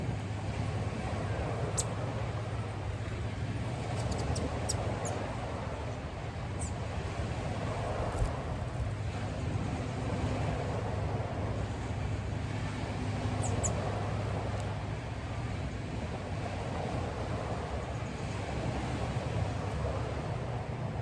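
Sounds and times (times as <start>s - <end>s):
small birds chirping: 1.6s - 2.0s, 3.8s - 5.2s, 13.4s - 13.8s.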